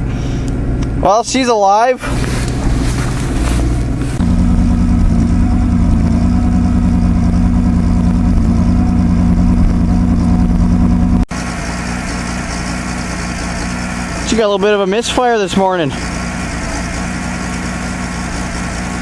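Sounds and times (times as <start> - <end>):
car engine running: 0.0 - 19.0
person speaking: 14.2 - 16.1.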